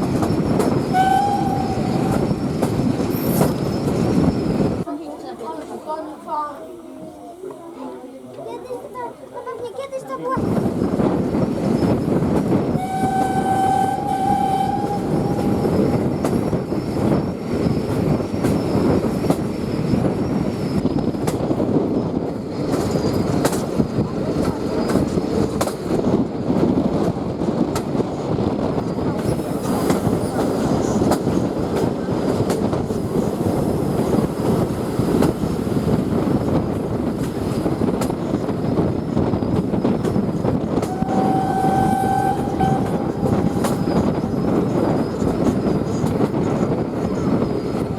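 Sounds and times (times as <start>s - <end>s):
train rumbling on rails: 0.0s - 47.9s
steam whistle: 0.9s - 2.2s, 12.8s - 15.7s, 40.8s - 44.0s.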